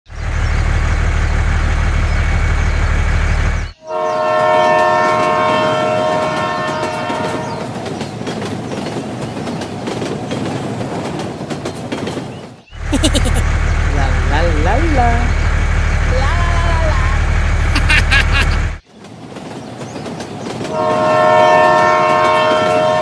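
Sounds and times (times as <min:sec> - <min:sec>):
train low rumble: 0:00.1 - 0:04.2
train horn blowing: 0:03.8 - 0:07.6, 0:20.7 - 0:23.0.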